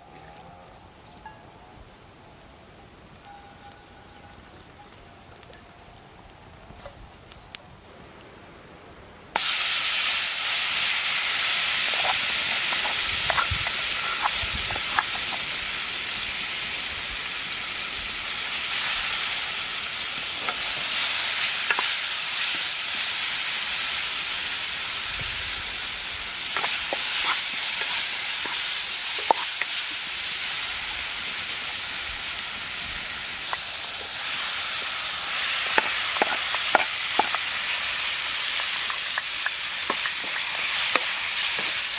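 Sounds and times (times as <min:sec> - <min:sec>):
food frying in hot oil: 0:09.4 - 0:41.9.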